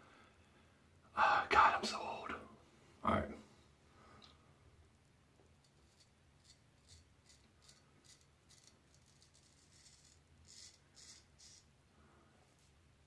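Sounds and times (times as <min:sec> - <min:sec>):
razor scraping stubble: 0:05.6 - 0:11.7.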